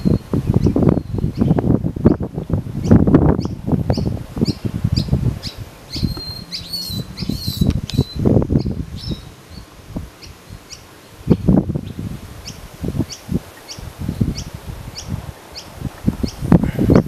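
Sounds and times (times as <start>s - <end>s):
low rumbles: 0.0s - 13.1s
birds chirping: 0.0s - 17.0s.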